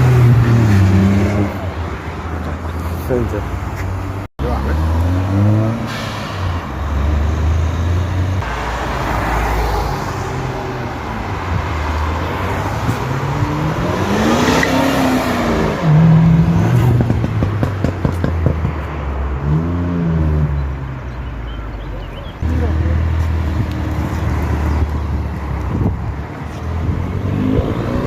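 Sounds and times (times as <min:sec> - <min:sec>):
car engines revving past: 0:00.0 - 0:21.1, 0:22.4 - 0:28.0.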